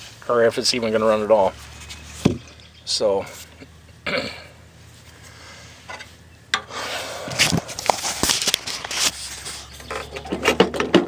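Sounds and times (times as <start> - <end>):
rubbing and scraping: 1.0 - 2.6, 4.9 - 11.0.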